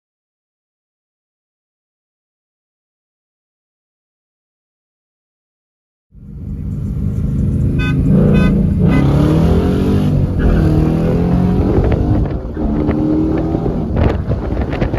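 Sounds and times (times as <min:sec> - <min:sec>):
car engine revving: 0:06.2 - 0:14.9.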